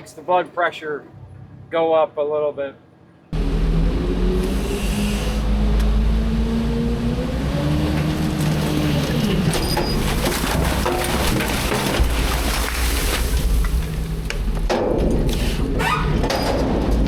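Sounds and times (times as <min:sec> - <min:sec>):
garbage truck engine: 0:03.4 - 0:17.0
clattering and banging: 0:07.9 - 0:15.3, 0:16.0 - 0:17.0.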